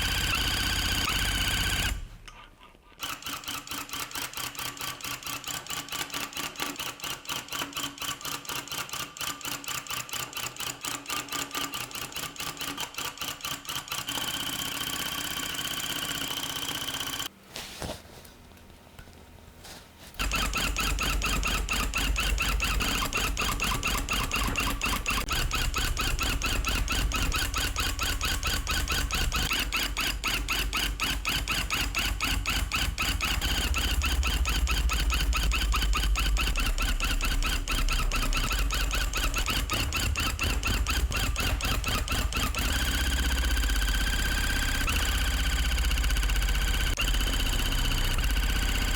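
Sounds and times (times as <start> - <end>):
tufting gun punching rhythmically: 20.2 - 47.0.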